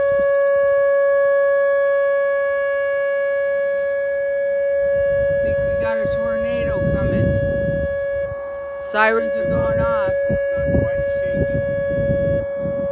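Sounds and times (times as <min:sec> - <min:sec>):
warning sirens steady tone: 0:00.0 - 0:12.9.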